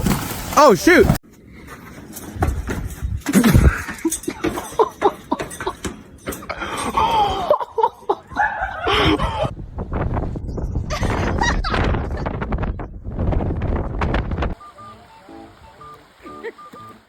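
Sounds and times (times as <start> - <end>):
people laughing: 3.3 - 5.8, 6.6 - 9.5, 16.2 - 16.9.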